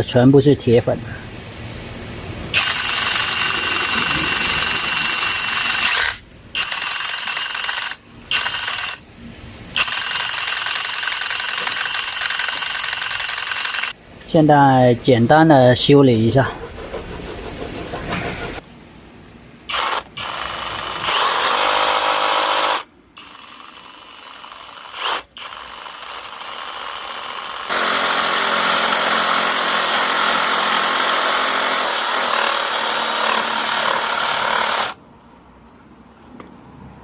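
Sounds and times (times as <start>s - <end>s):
power tool motor whining: 2.5s - 9.0s, 9.8s - 14.0s, 19.7s - 35.0s.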